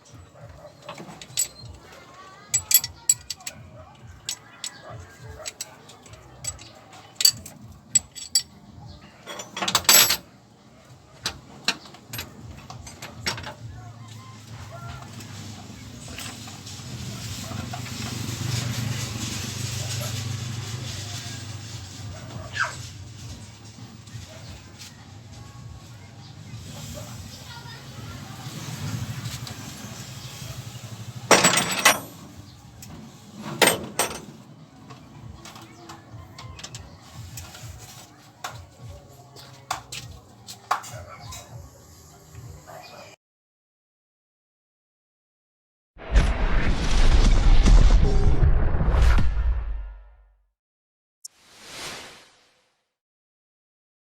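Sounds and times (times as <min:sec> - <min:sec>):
metal tools clinking: 0:00.8 - 0:08.6, 0:09.2 - 0:10.2, 0:11.7 - 0:13.6, 0:31.3 - 0:32.4, 0:33.4 - 0:34.4.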